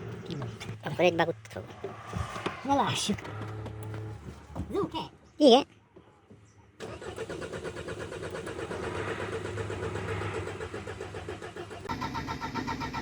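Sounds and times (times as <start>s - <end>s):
car engine turning over: 6.8s - 13.0s.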